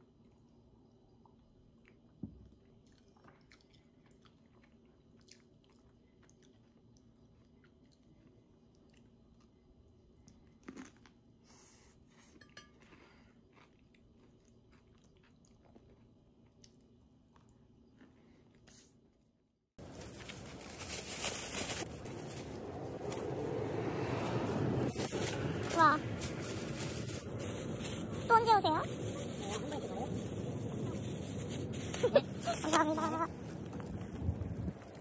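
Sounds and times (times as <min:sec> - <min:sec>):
chewing toast crunches: 0:01.8 - 0:11.3, 0:13.0 - 0:18.2.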